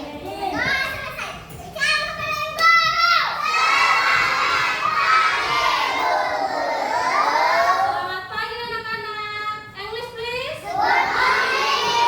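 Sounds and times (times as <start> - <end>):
children shouting together: 2.6 - 8.0, 10.7 - 12.0.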